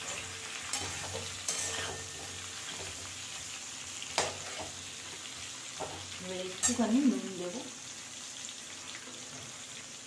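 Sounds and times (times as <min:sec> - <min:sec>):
spatula scraping and knocking pan: 0:00.0 - 0:03.5, 0:04.1 - 0:06.8
mango sizzling in hot oil: 0:00.0 - 0:10.0.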